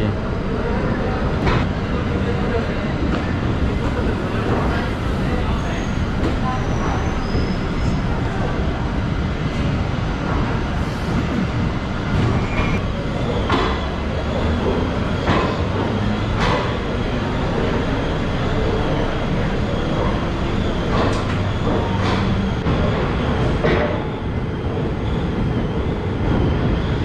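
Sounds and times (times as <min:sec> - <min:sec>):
train coaches rumbling on track: 0:00.0 - 0:27.0.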